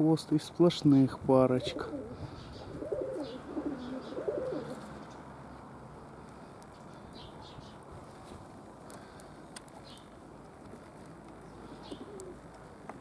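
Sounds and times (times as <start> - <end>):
pigeons cooing: 1.4 - 5.2, 11.4 - 12.8.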